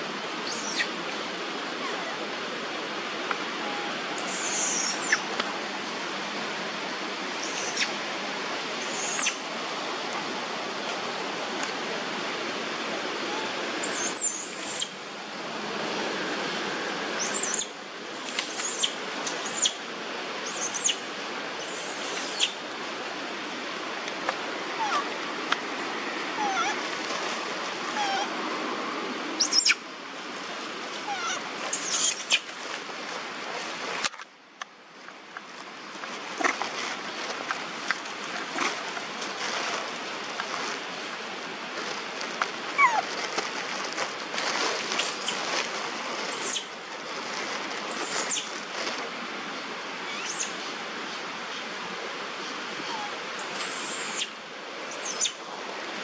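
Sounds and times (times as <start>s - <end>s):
steady background hiss: 0.0s - 56.0s
monkey squeaking and chirping: 0.5s - 0.9s, 3.7s - 5.2s, 7.4s - 7.9s, 8.8s - 9.4s, 13.8s - 14.9s, 17.2s - 19.8s, 20.4s - 21.0s, 21.6s - 22.6s, 26.4s - 26.7s, 28.0s - 28.2s, 29.4s - 29.8s, 31.1s - 32.4s, 42.8s - 43.0s, 45.0s - 45.4s, 46.3s - 46.7s, 47.9s - 48.5s, 50.1s - 50.5s, 52.9s - 54.3s, 54.9s - 55.4s.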